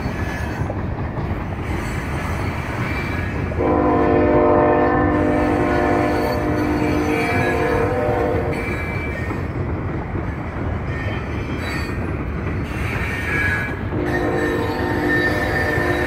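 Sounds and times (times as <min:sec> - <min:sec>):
train cars rumbling on bridge: 0:00.0 - 0:16.0
locomotive horn: 0:03.6 - 0:08.7, 0:14.0 - 0:16.0.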